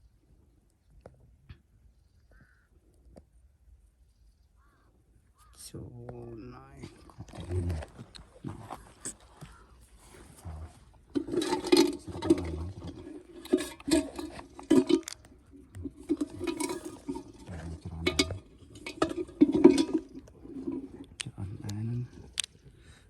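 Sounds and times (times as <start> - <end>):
small hard objects clinking: 11.1 - 21.3.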